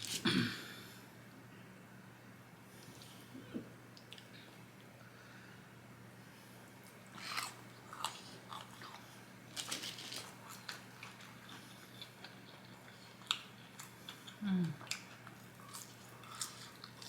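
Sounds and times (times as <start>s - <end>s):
person crunching and chewing: 6.8s - 17.0s.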